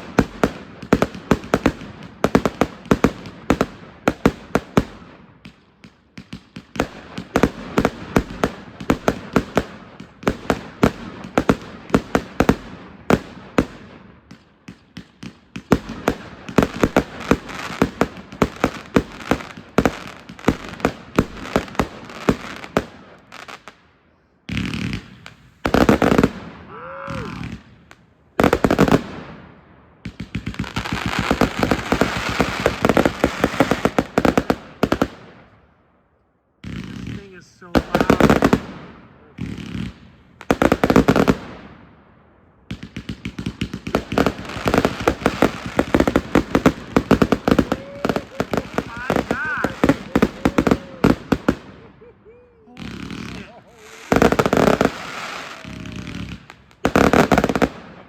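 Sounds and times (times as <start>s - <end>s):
fireworks hissing and crackling: 0.0s - 29.4s, 30.0s - 35.5s, 36.6s - 41.8s, 42.7s - 58.0s
fireworks barrage: 0.0s - 35.7s, 36.6s - 58.0s
firework whistle: 46.9s - 56.3s.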